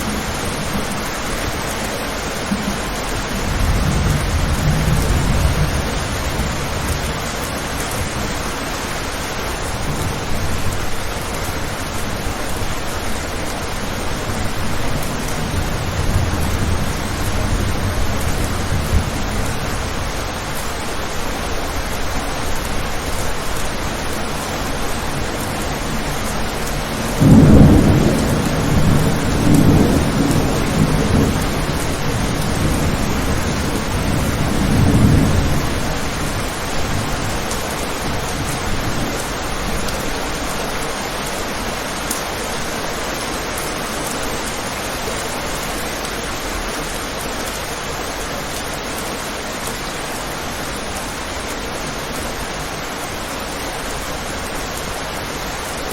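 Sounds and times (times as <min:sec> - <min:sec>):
thunder rumbling: 0:00.0 - 0:40.9
rain on a window: 0:00.0 - 0:55.9.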